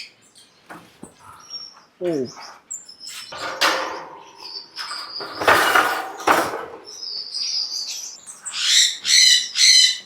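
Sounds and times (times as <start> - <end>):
finch chirps: 1.2 - 3.4.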